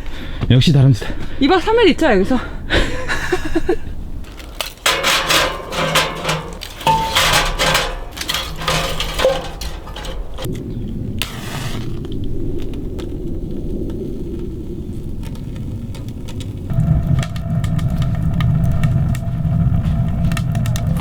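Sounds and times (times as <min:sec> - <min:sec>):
sharp clattering knocks: 0:04.2 - 0:10.5.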